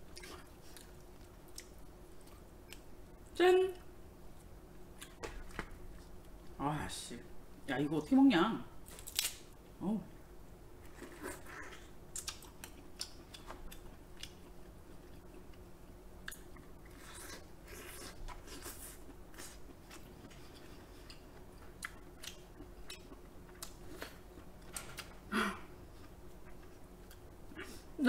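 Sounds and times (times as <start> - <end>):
chewing and lip-smacking: 0.1 - 2.9, 10.9 - 15.6, 16.2 - 25.1.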